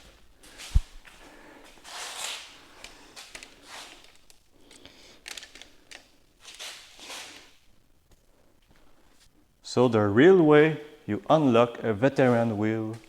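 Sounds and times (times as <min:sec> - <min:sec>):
soft rustling: 0:00.0 - 0:09.6.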